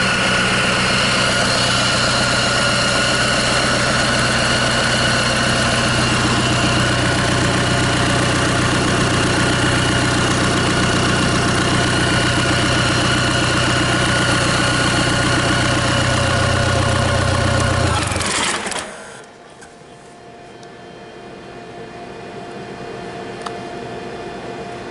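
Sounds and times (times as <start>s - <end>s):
diesel engine idling: 0.0s - 19.4s.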